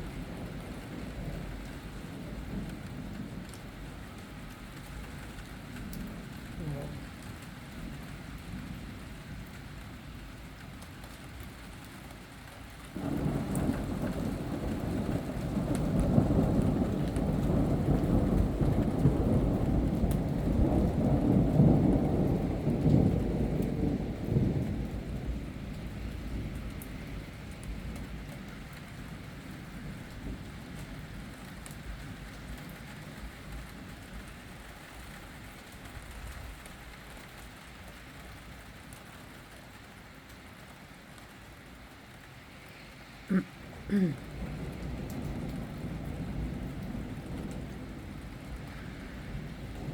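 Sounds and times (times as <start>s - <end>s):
steady rain: 0.0s - 49.9s
rolling thunder: 13.0s - 32.6s, 43.6s - 49.9s.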